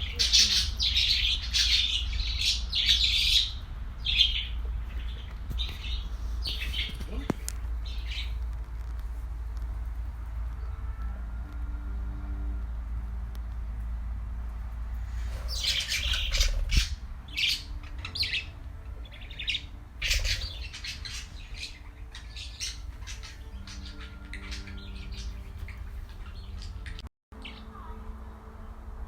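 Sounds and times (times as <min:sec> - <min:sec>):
birds calling high-pitched: 0:00.0 - 0:08.5, 0:15.0 - 0:28.1
steady low hum: 0:00.0 - 0:29.0.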